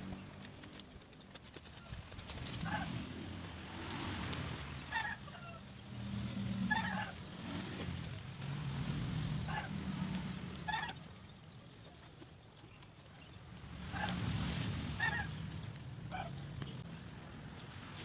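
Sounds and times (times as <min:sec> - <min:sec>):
bird calls: 0:04.9 - 0:07.3, 0:14.9 - 0:17.8.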